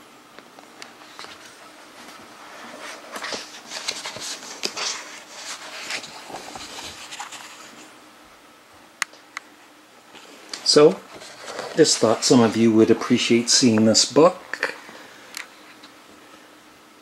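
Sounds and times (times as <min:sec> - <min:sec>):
book pages turning: 0:01.0 - 0:07.9, 0:10.2 - 0:13.0.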